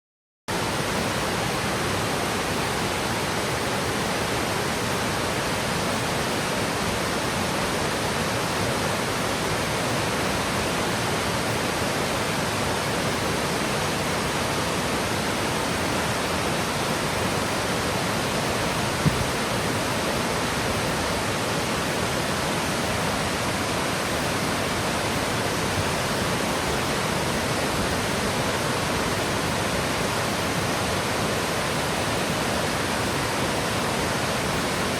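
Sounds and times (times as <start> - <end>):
waterfall rushing: 0.5 - 34.9
brief knock: 19.0 - 19.3.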